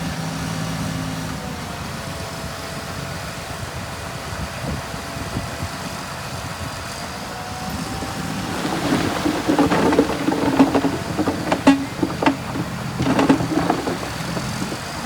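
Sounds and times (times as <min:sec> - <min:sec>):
sharp knocks and clanks: 0:07.8 - 0:15.0.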